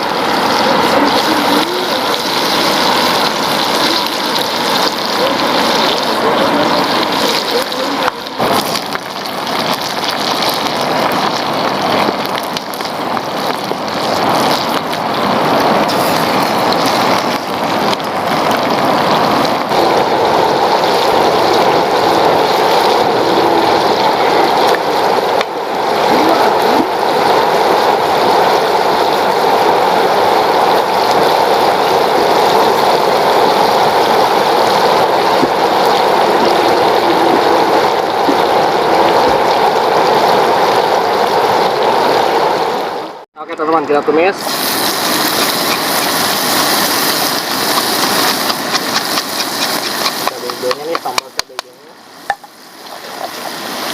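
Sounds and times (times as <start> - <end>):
sizzling and bubbling in hot oil: 0.0 - 43.2, 44.3 - 53.9.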